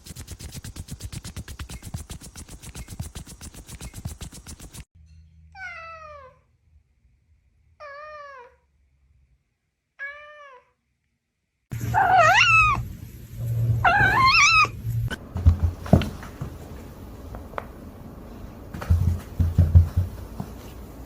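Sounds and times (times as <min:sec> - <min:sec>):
cat meowing: 0:05.6 - 0:06.4, 0:07.8 - 0:08.6, 0:10.0 - 0:10.8, 0:11.8 - 0:15.2
knocks and bumps: 0:13.4 - 0:17.8, 0:18.7 - 0:20.8.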